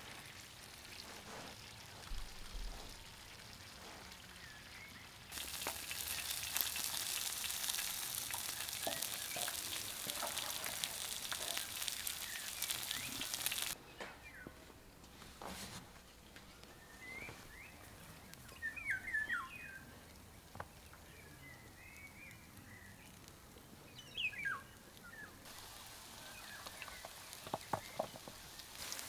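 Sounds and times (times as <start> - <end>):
food sizzling in hot oil: 0.0 - 13.8, 25.4 - 29.0
faint bird chirps: 16.7 - 20.0.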